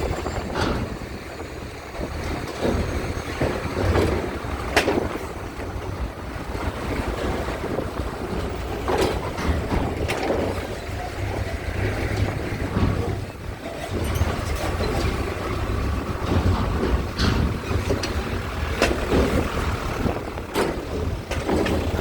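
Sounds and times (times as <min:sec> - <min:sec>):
ferry engines rumbling: 0:00.0 - 0:22.0
wind noise: 0:00.0 - 0:22.0
sharp metallic knocks: 0:06.5 - 0:22.0.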